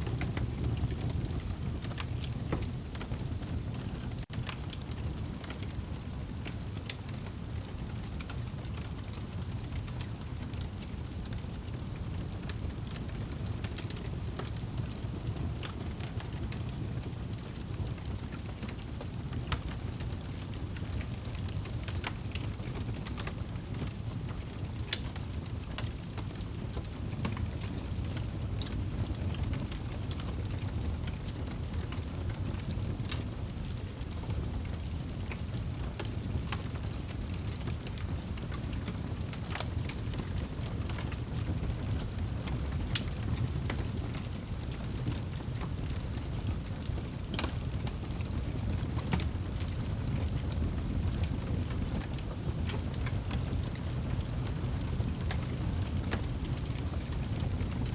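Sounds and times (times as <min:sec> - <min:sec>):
fire crackling and popping: 0:00.0 - 0:57.9
rain falling: 0:00.0 - 0:57.9.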